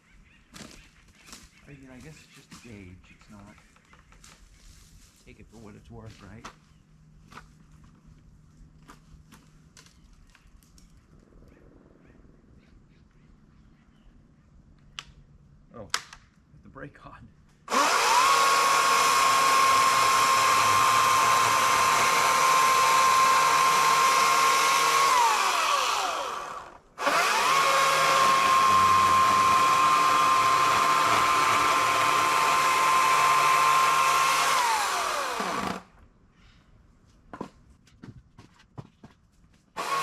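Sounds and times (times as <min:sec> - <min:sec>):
electric chainsaw whine: 0:17.7 - 0:36.0, 0:39.8 - 0:40.0.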